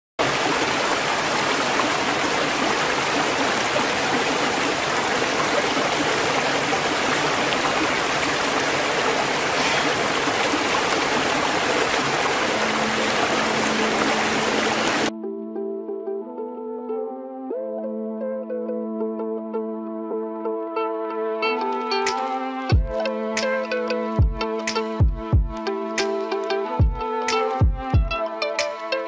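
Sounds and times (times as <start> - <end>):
waterfall rushing: 0.2 - 15.1.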